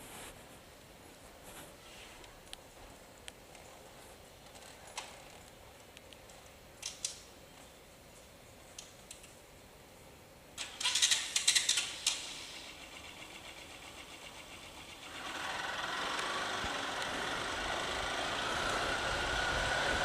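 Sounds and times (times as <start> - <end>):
sharp clicks and rattles: 10.6 - 19.3
road noise: 11.8 - 20.0
motorcycle engine running: 13.2 - 20.0.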